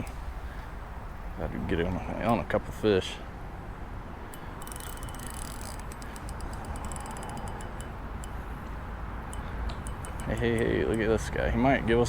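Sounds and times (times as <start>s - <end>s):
low background rush: 0.0s - 12.0s
fishing reel clicking: 4.3s - 11.3s.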